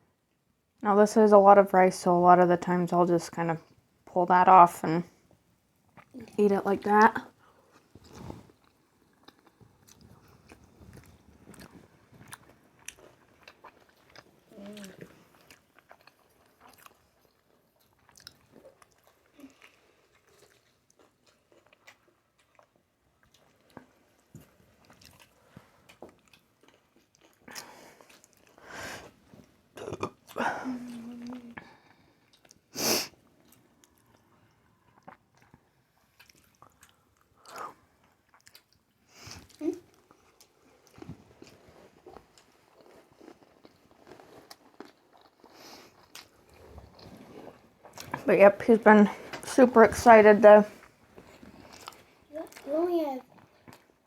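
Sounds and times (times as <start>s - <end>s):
person chewing: 7.4s - 28.7s, 29.4s - 32.7s, 33.4s - 48.2s, 50.8s - 52.7s.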